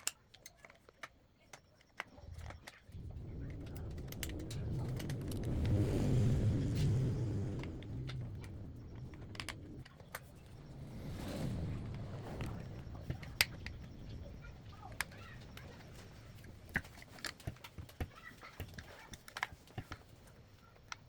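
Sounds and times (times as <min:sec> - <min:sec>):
small clicks: 0:00.0 - 0:11.0, 0:11.8 - 0:21.0
passing vehicle rumble: 0:03.0 - 0:13.2.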